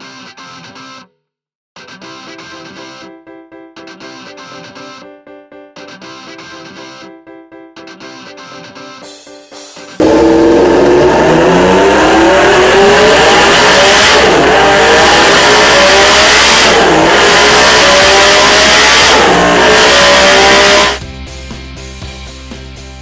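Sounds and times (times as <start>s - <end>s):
motorcycle engine revving: 10.0s - 21.0s.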